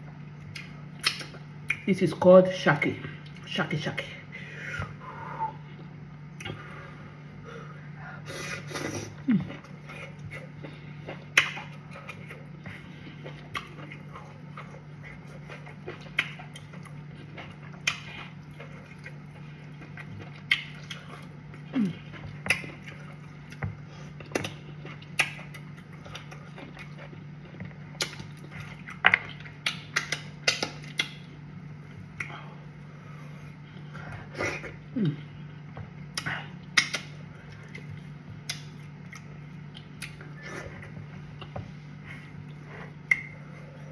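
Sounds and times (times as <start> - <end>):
person chewing food: 0.0 - 1.9, 4.8 - 43.9
steady low hum: 0.0 - 43.9
lip smacks: 0.4 - 1.9, 11.1 - 12.4, 15.1 - 17.0, 17.8 - 19.2, 20.4 - 21.2, 24.3 - 25.6, 28.0 - 31.3, 32.1 - 32.6, 36.1 - 40.7, 43.0 - 43.5.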